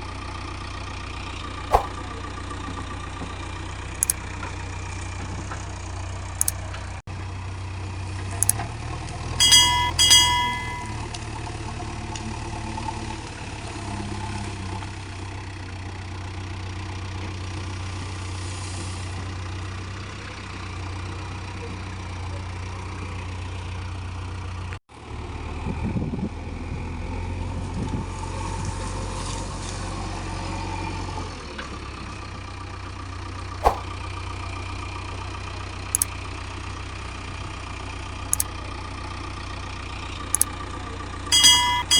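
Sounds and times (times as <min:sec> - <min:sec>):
brief high tones: 0:09.4 - 0:10.9
sharp clicks: 0:09.4 - 0:10.9, 0:41.3 - 0:41.9.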